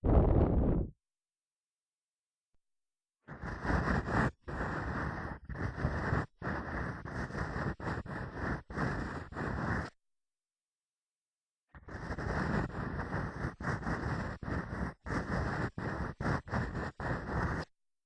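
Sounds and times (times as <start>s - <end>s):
ear pick scraping on microphone: 0.0s - 0.9s, 12.0s - 17.7s.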